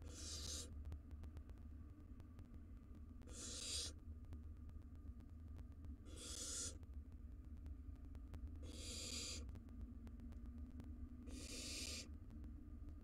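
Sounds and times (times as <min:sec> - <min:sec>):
owl chicks screeching: 0:00.0 - 0:00.7, 0:03.3 - 0:04.0, 0:06.1 - 0:06.8, 0:08.6 - 0:09.4, 0:11.3 - 0:12.1
low steady hum: 0:00.0 - 0:13.0.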